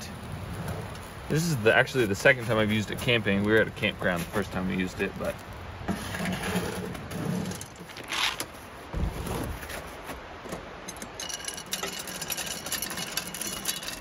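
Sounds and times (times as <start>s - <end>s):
fire crackling: 0.0s - 14.0s
metal scrape: 5.9s - 8.4s, 10.9s - 14.0s
low thump: 8.9s - 9.6s.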